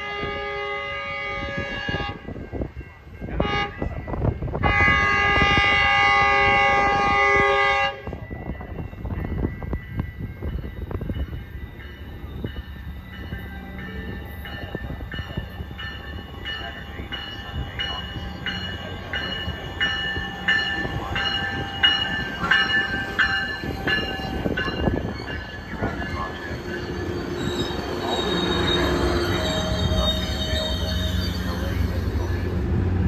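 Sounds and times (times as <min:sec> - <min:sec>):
locomotive bell ringing: 0:01.0 - 0:33.0
train wheels rumbling: 0:01.4 - 0:33.0
brakes squealing: 0:23.8 - 0:32.5.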